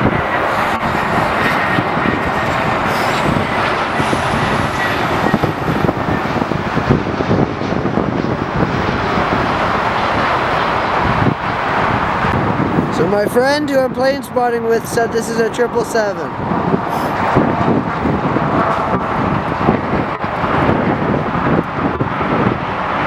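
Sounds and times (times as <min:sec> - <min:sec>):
high whine rising in pitch: 0:00.0 - 0:08.7
jet engine noise: 0:00.0 - 0:23.0.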